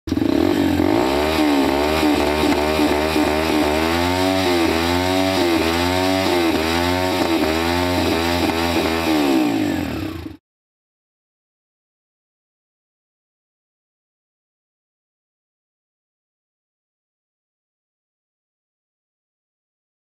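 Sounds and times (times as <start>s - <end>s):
dirt bike engine revving: 0.1s - 10.4s.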